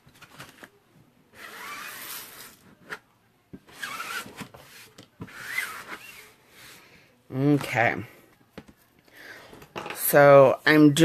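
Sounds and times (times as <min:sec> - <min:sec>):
rubbing strokes with squeak: 0:03.7 - 0:04.3, 0:05.3 - 0:06.2.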